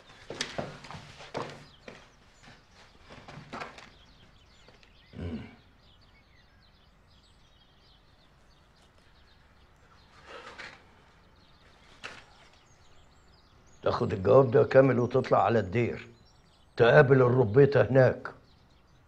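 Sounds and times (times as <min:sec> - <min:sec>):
faint bird chirps: 0:00.0 - 0:19.0
soft rustle: 0:08.7 - 0:13.1.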